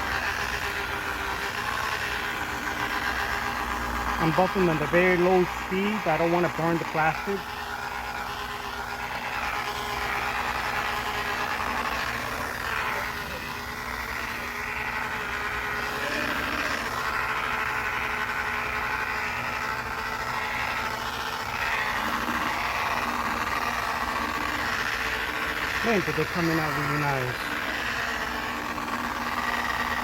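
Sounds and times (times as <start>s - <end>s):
electric polisher motor whine: 0.0s - 30.0s.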